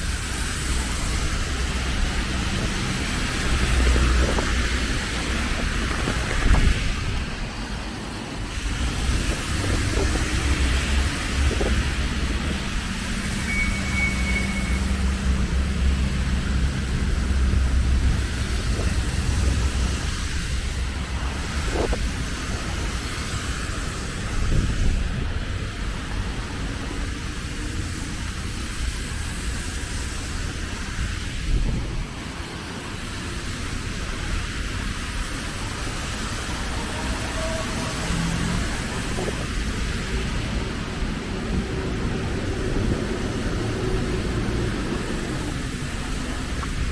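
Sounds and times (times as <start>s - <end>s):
constant hiss: 0.0s - 46.9s
road traffic rumble: 0.0s - 46.9s
steady rain: 0.0s - 46.9s
thin high tone: 13.4s - 15.0s.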